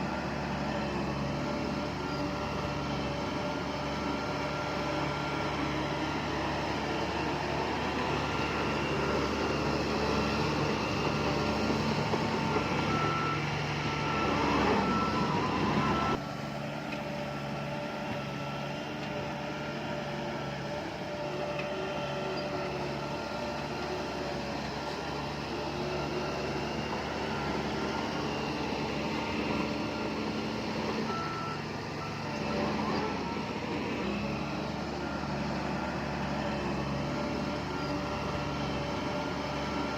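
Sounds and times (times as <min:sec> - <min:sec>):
heavy vehicle engine running: 0:00.0 - 0:39.9
reversing alarm beeping: 0:01.6 - 0:16.2, 0:25.5 - 0:39.9.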